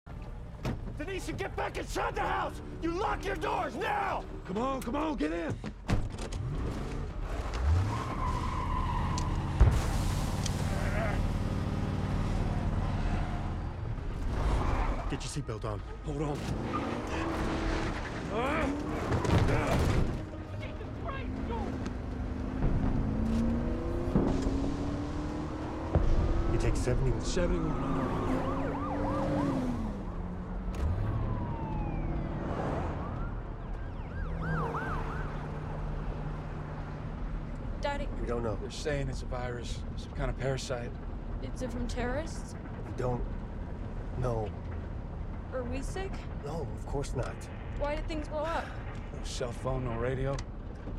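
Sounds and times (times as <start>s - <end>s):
car engine hum and road noise: 0.1s - 50.9s
tire squeal: 7.2s - 11.5s, 12.2s - 15.6s, 16.6s - 19.8s
car engine revving: 16.2s - 33.1s
emergency sirens yelping: 26.8s - 36.9s
long falling siren tone: 27.2s - 36.1s.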